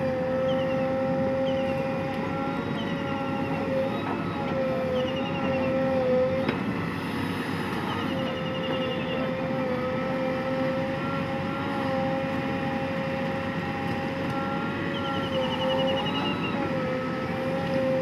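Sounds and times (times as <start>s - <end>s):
heavy machine diesel engine: 0.0s - 18.0s
high wavering whine: 7.8s - 18.0s.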